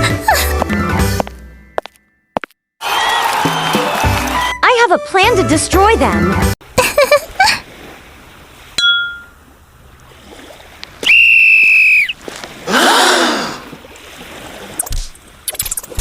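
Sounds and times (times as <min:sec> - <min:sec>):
short ding: 0:08.8 - 0:09.4
high whistle blast: 0:11.0 - 0:12.2.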